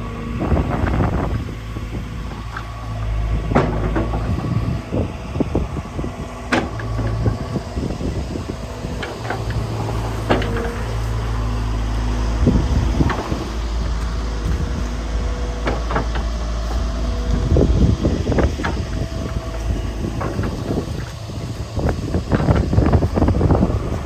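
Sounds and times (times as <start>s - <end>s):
diesel engine running: 0.0s - 24.0s
machine knocks and clatter: 3.4s - 4.7s, 6.5s - 24.0s.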